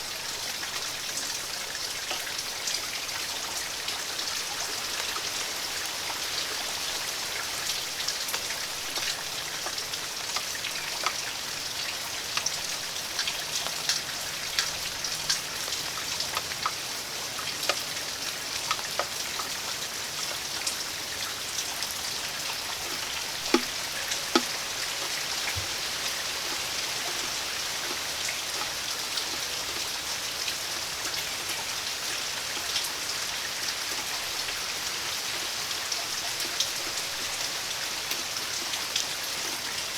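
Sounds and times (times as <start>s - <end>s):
steady rain: 0.0s - 39.9s
drops ticking on surfaces: 22.8s - 25.8s.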